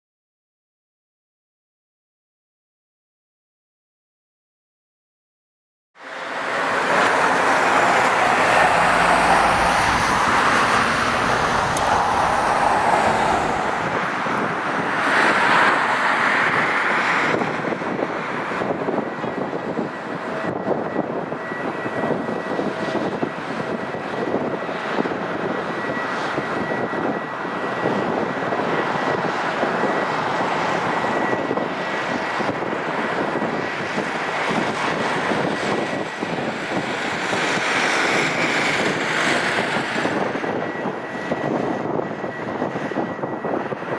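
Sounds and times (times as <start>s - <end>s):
jet engines roaring: 6.0s - 43.9s.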